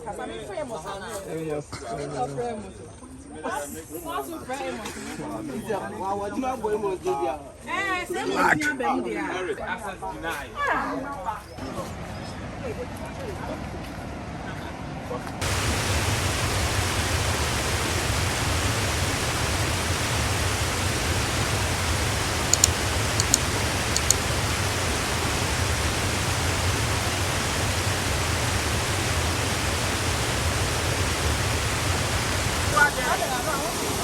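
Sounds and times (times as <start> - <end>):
waterfall pouring and crashing: 15.4 - 34.0.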